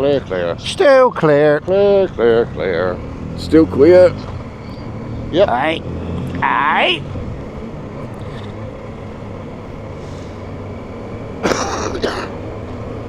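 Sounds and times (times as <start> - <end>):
motorcycle engine droning: 0.0 - 13.0
sharp noisy burst: 11.4 - 12.4.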